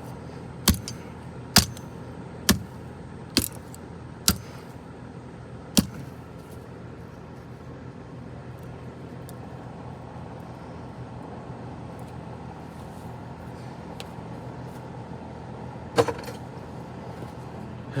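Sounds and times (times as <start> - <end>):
steady low hum: 0.0 - 8.6
sharp knock: 0.7 - 0.9, 1.6 - 1.8, 2.5 - 2.7, 3.4 - 3.7, 4.3 - 4.5, 5.8 - 6.0.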